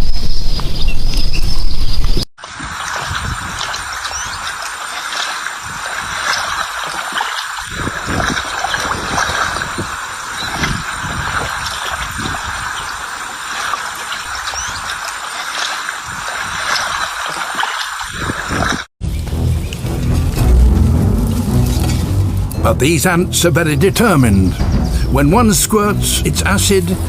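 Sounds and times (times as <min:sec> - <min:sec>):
running water: 0:02.4 - 0:22.6
low rumbles: 0:19.0 - 0:27.0.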